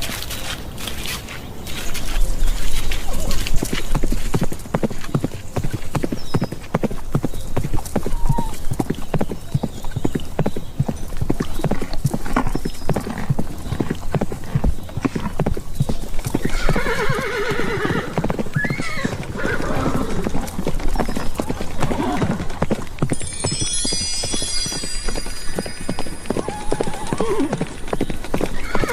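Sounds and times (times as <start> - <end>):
horse hooves galloping: 0.0 - 28.9
horse whinnying: 16.4 - 20.3, 26.4 - 27.7, 28.6 - 28.9.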